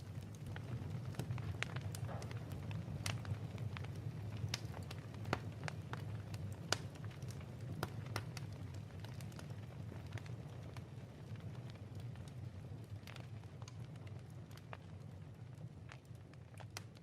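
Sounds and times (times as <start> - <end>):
sharp pops of fire: 0.0 - 10.3
log fire crackling: 0.0 - 17.0
low rumble of fire: 0.0 - 17.0.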